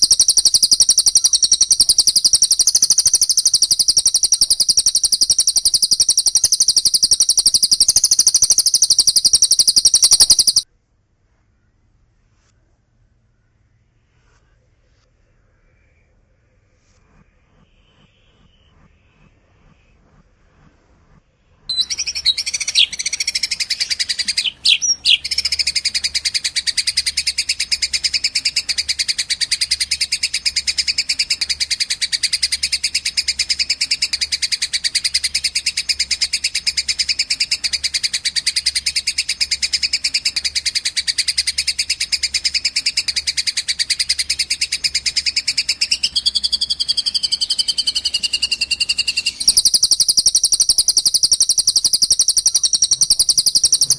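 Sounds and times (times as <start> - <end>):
lower bird trill: 0.0 - 10.7, 21.7 - 53.9
rapid high bird trill: 0.0 - 10.7, 21.7 - 53.9.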